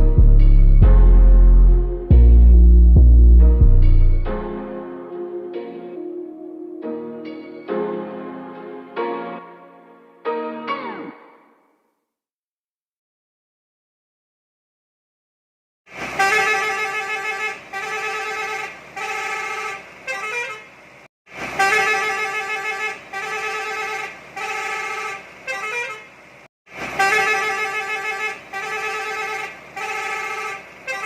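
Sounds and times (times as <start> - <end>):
bus horn playing a tune: 4.6 - 6.9, 16.1 - 20.7, 21.6 - 26.1, 27.0 - 31.0.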